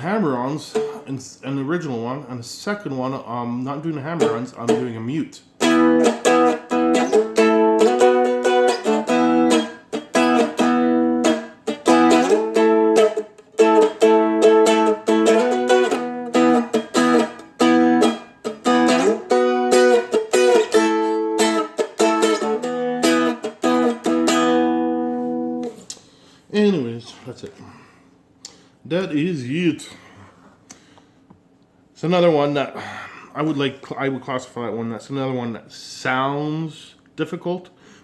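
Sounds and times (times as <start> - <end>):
dulcimer strummed blues chords: 0.4 - 1.2, 4.1 - 25.8.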